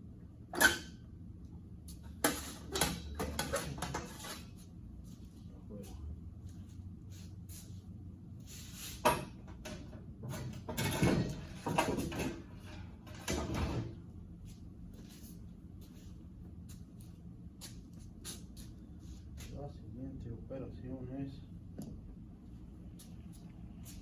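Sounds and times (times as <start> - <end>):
tools scraping and sliding: 2.2 - 4.6.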